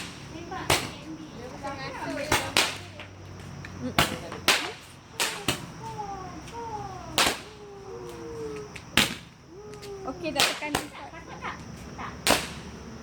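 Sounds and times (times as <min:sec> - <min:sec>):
fireworks cracking: 0:00.0 - 0:12.9.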